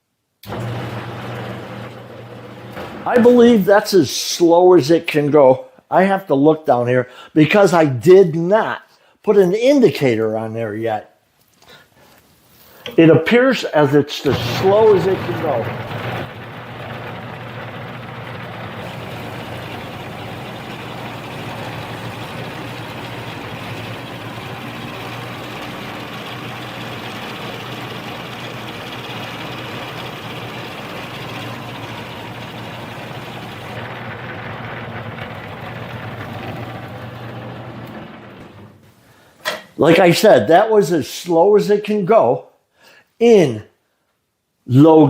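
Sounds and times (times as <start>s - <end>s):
drill press humming: 0.4s - 3.6s, 14.2s - 38.9s.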